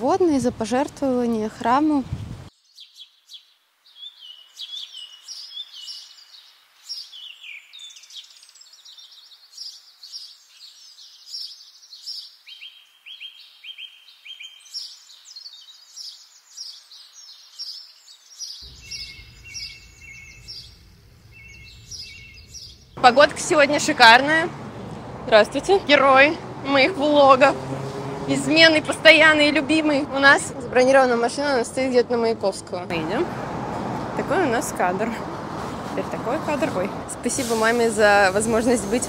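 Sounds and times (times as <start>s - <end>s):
birds chirping and twittering: 2.5s - 39.0s
low rumble: 18.6s - 23.3s.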